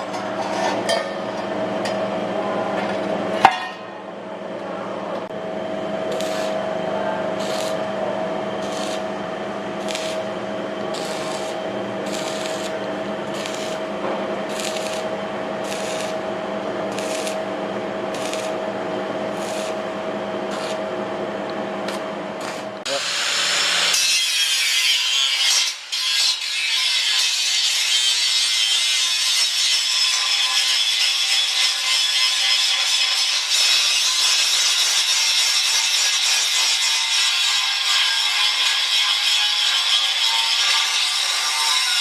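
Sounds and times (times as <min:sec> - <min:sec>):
steady machine hum: 0:00.0 - 0:23.9
hand tool rasping strokes: 0:06.1 - 0:06.6, 0:07.4 - 0:07.8, 0:08.6 - 0:09.1, 0:09.8 - 0:10.3, 0:10.9 - 0:13.9, 0:14.5 - 0:16.2, 0:16.9 - 0:17.4, 0:18.1 - 0:18.6, 0:19.4 - 0:19.8, 0:20.5 - 0:20.8.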